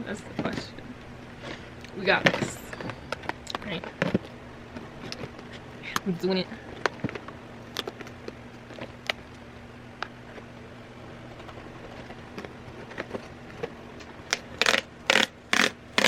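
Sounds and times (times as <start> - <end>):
packaging ripping: 14.3 - 16.0.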